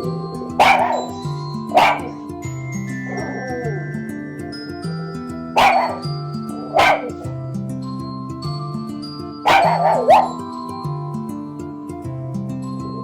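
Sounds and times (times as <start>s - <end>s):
dog barking and yelping: 0.0s - 2.3s, 3.1s - 3.9s, 5.6s - 7.3s, 9.5s - 10.4s
soft background music: 0.0s - 13.0s.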